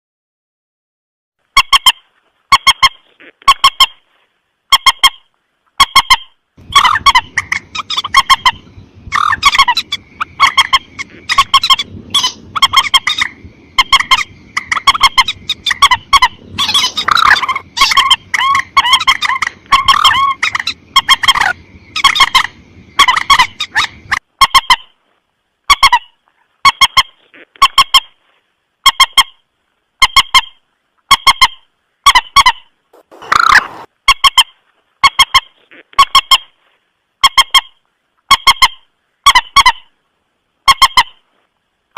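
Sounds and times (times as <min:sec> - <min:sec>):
low background hiss: 0:01.4 - 0:41.9
moorhen honking calls: 0:01.6 - 0:04.0, 0:05.8 - 0:24.9, 0:30.0 - 0:36.5.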